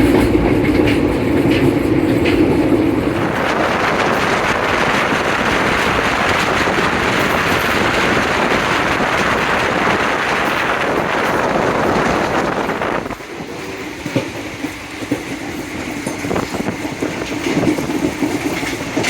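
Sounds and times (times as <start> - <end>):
moving train rushing noise: 0.0 - 19.0.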